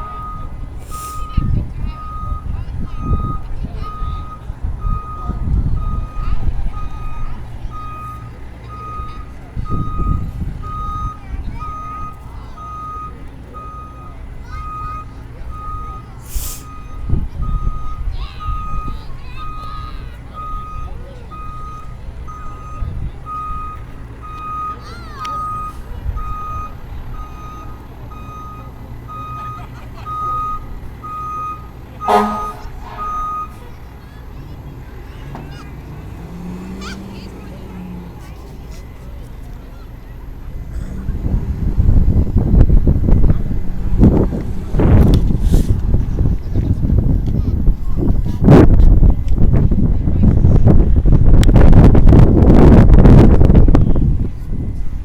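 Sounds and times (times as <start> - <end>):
reversing alarm beeping: 0.0 - 33.8
truck engine: 0.0 - 55.0
loud pitched sound: 32.0 - 33.6.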